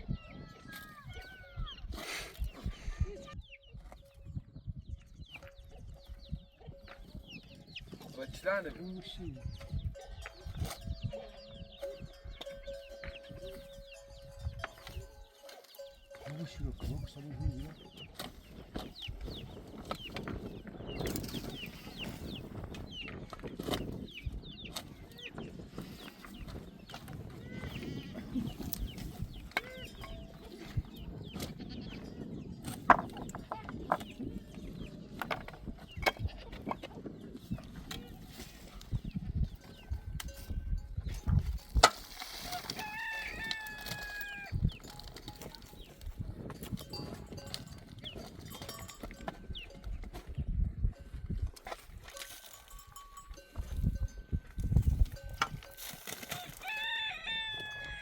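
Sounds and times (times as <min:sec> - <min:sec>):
chickens chirping: 0:00.0 - 0:52.6
rooster crowing: 0:42.7 - 0:44.5, 0:56.4 - 0:58.0.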